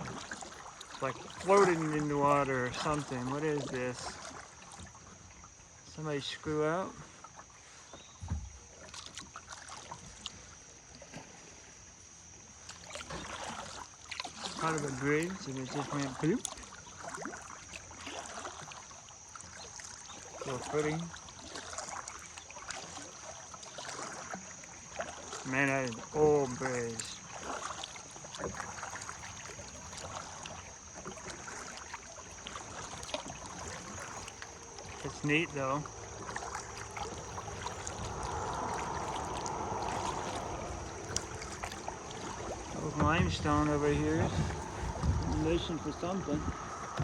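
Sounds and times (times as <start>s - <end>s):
paddle splashing and dripping water: 0.0s - 47.0s
paddle knocks: 8.0s - 9.3s, 36.2s - 47.0s
low thump: 8.2s - 8.6s, 42.7s - 47.0s.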